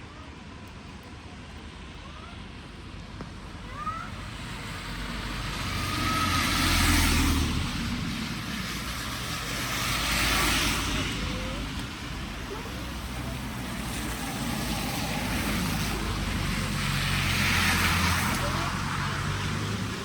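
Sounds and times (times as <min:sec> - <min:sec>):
vehicle approaching: 0:00.4 - 0:20.0
car passing on wet road: 0:04.0 - 0:20.0.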